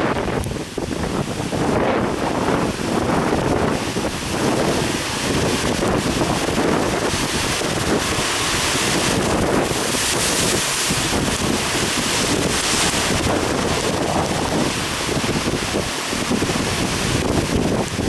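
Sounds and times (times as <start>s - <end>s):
surf breaking against harbour: 0.0s - 18.0s
wind buffeting microphone: 0.0s - 18.0s.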